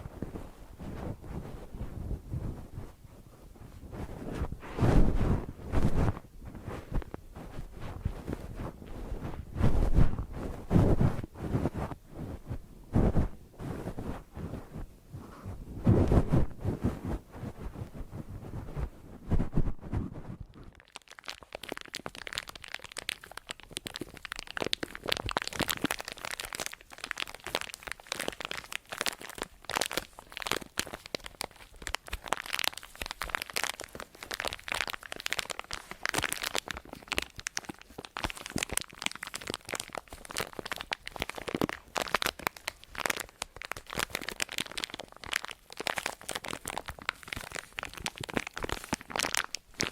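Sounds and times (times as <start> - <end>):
crinkling and crunching: 15.8 - 49.9.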